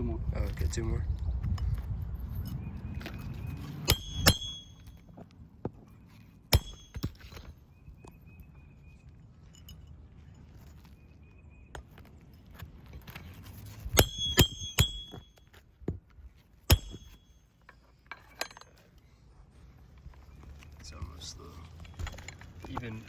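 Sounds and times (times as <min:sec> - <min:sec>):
metal tool ringing hits: 0:03.8 - 0:05.0, 0:06.5 - 0:07.5, 0:13.9 - 0:15.6, 0:16.7 - 0:18.8.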